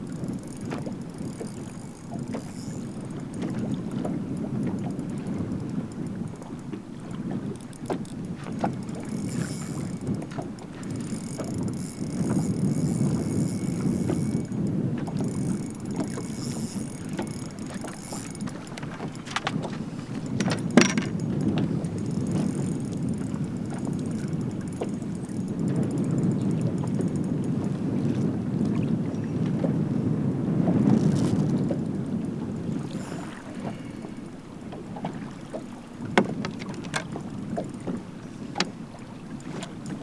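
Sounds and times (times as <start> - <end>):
thin high whir: 0.0 - 6.6, 7.6 - 27.7, 30.7 - 34.7
water noise around boat: 0.0 - 40.0
wind buffeting microphone: 0.0 - 40.0.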